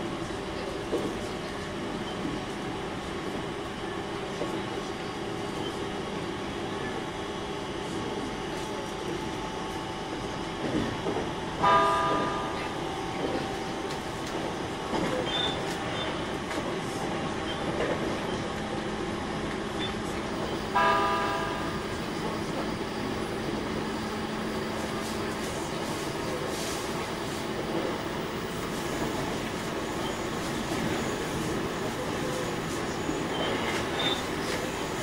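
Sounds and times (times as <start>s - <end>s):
wheels rumbling on rail: 0.0s - 35.0s.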